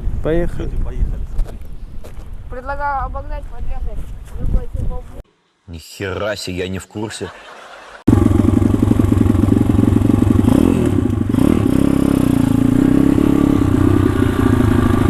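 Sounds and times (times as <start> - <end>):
pit bike engine running: 8.1 - 15.0.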